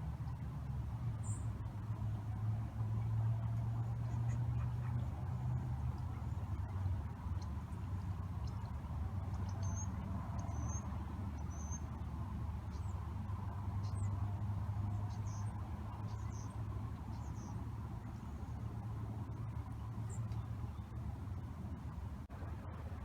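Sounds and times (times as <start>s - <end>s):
small birds chirping: 7.3s - 12.0s, 12.6s - 13.1s, 13.8s - 14.2s, 14.9s - 18.6s.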